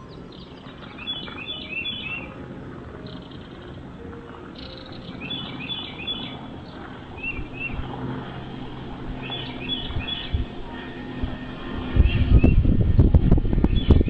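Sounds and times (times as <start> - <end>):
bird chirping: 0.0 - 2.4, 3.0 - 7.9, 9.2 - 10.5
steady low hum: 0.0 - 14.0.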